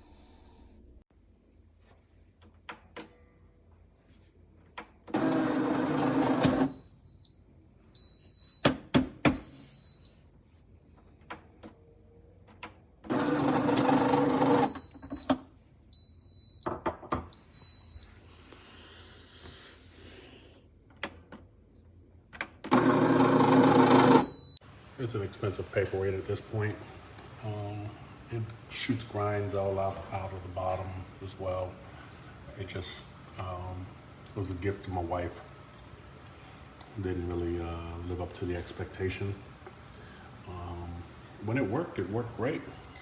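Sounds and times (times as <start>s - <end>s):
coffee grinder running: 5.2s - 6.6s, 13.1s - 14.7s, 22.7s - 24.3s.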